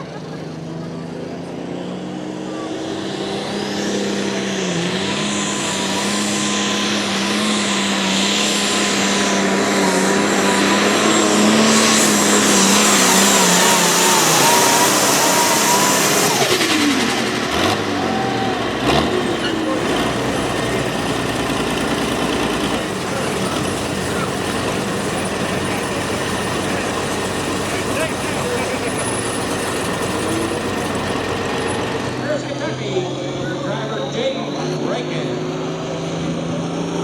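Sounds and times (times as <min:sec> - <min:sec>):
engine revving high under load: 0:01.0 - 0:37.0.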